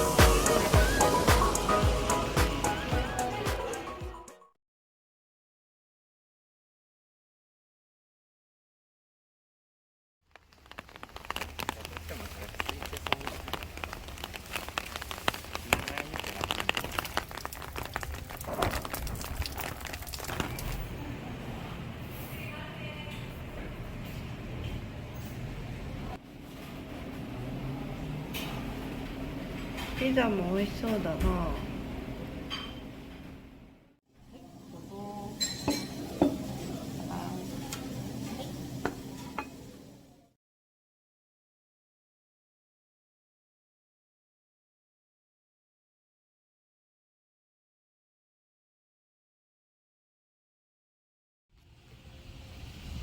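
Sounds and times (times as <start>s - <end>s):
rain drops tapping hard surface: 10.3s - 21.0s
cutlery and dishes clinking: 32.5s - 32.9s, 35.4s - 36.7s, 38.9s - 39.7s.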